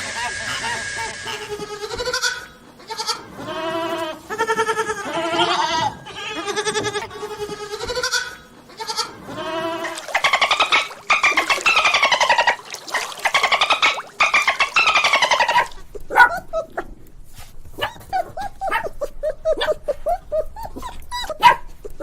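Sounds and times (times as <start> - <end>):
fast pulsing animal call: 0.0 - 1.7, 9.8 - 15.8
farm animals bleating: 0.2 - 10.7.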